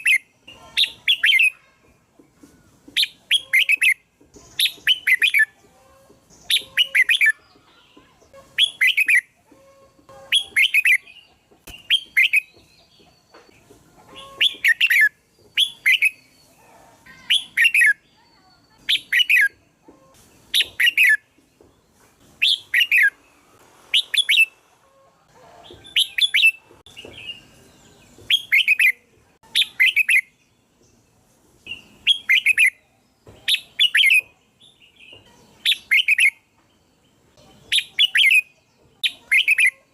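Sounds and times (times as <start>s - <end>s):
bird warbling song: 3.0s - 5.6s, 6.2s - 19.7s, 25.6s - 39.9s.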